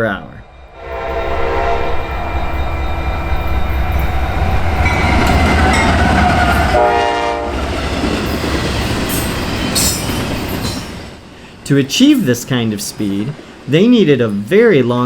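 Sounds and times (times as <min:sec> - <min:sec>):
freight train rumbling on rails: 0:00.0 - 0:15.0
diesel locomotive horn blast: 0:00.7 - 0:02.4, 0:03.4 - 0:07.8.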